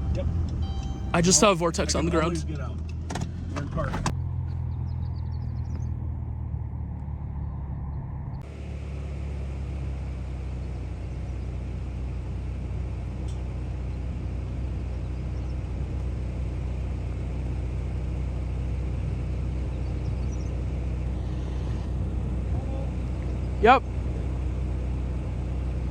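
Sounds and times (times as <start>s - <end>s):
car engine idling: 0.0s - 25.9s
rushing wind: 19.6s - 25.9s.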